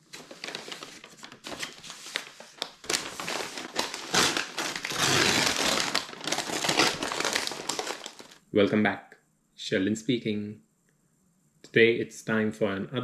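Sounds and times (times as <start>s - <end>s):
paper bag crinkling and rustling: 0.0s - 8.4s.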